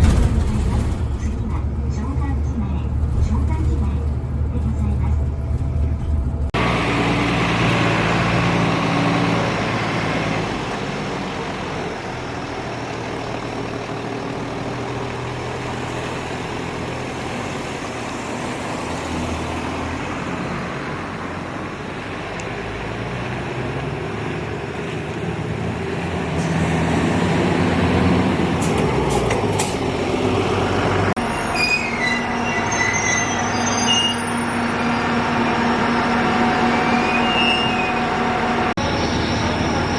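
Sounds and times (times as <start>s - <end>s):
train running on rails: 0.0s - 39.9s
high wheel squeals: 31.2s - 39.9s
pitched drone: 35.0s - 39.9s.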